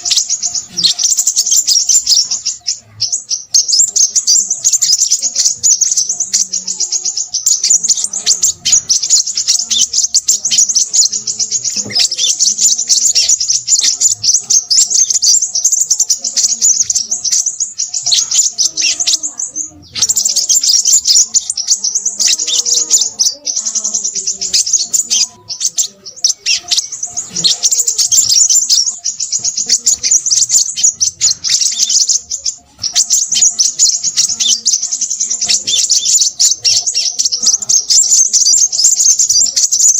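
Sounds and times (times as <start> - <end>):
bird chirping and twittering: 0.0 - 39.9.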